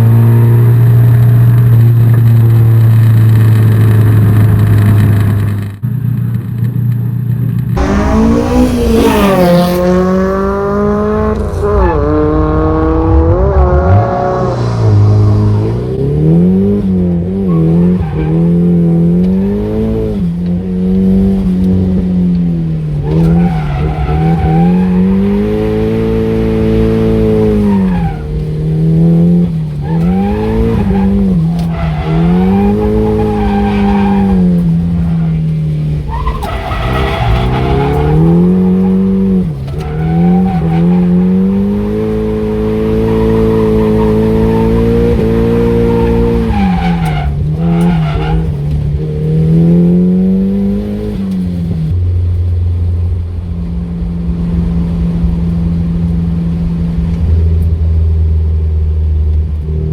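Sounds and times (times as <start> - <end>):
car engine revving: 0.0 - 59.9
tyre squeal: 29.5 - 48.7.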